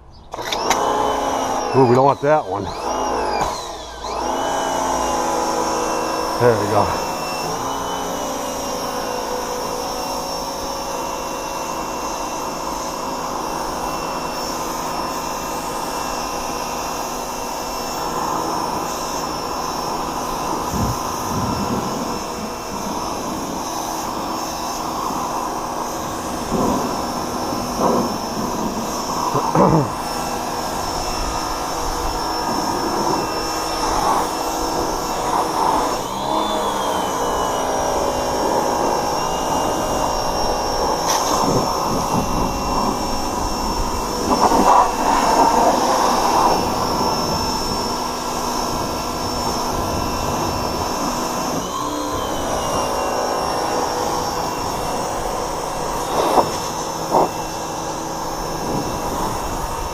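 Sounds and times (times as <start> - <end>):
pressure washer motor whining: 0.0 - 59.9
water spray hissing: 17.8 - 36.8, 53.2 - 59.9.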